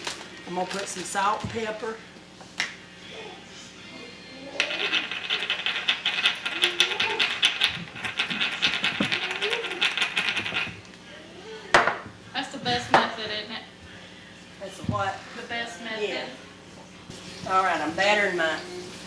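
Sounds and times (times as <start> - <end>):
shakers rattling: 0.0 - 1.9, 4.6 - 11.0, 11.8 - 13.6.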